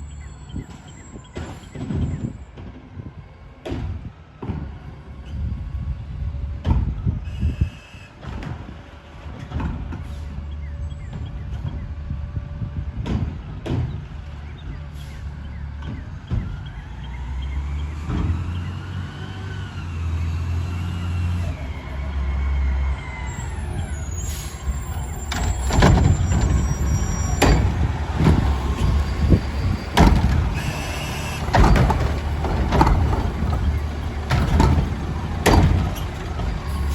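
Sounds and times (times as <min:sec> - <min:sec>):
diesel engine revving: 0:09.3 - 0:36.9
hydraulic arm whine: 0:21.3 - 0:36.9
clattering and bangs: 0:24.5 - 0:36.9.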